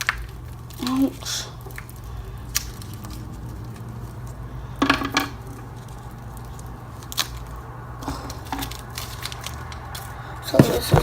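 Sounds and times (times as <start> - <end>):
steady low hum: 0.0 - 11.0
candy wrappers crinkling: 5.7 - 11.0.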